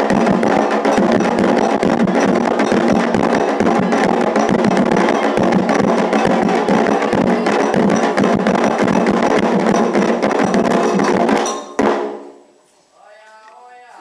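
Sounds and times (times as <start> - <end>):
hand drums and percussion: 0.0 - 12.2.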